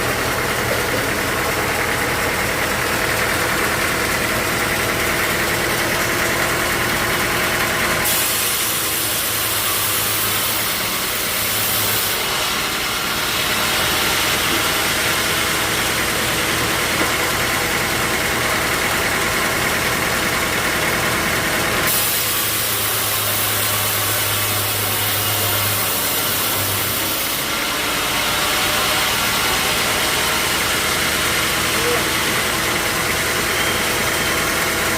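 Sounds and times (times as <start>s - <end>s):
machinery hum: 0.0s - 21.7s
high machine whine: 0.0s - 34.9s.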